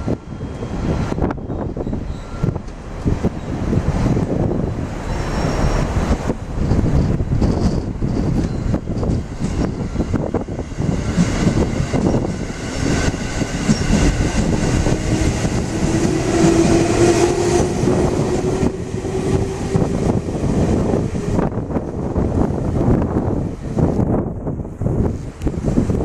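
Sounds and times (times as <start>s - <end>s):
electric train motor whine: 8.4s - 22.2s.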